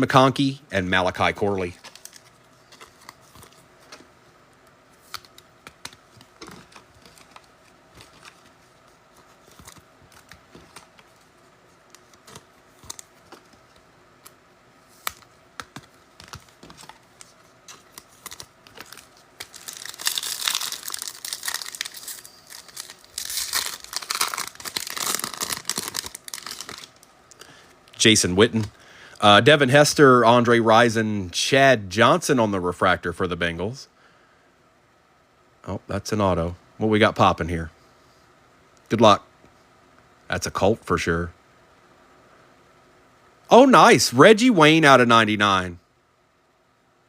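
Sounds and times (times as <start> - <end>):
wrapper tearing and crinkling: 16.2 - 27.1.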